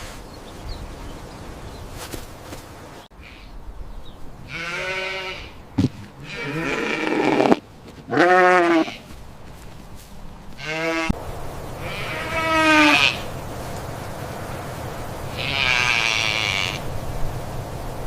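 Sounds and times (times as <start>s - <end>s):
sheep bleating: 4.5s - 5.5s, 6.2s - 9.0s, 10.6s - 11.1s, 15.3s - 16.8s.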